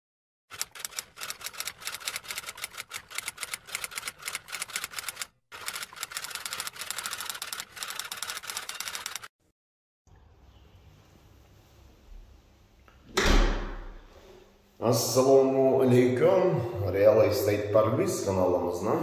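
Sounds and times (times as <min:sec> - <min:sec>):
typewriter typing clicks: 0:00.5 - 0:09.3.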